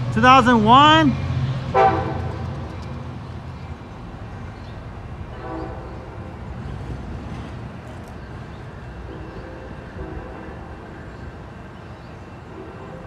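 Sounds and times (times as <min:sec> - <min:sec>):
train cars rumbling past: 0:00.0 - 0:13.0
train horn blast: 0:01.7 - 0:02.7, 0:05.3 - 0:06.4, 0:09.0 - 0:11.0, 0:12.5 - 0:13.0.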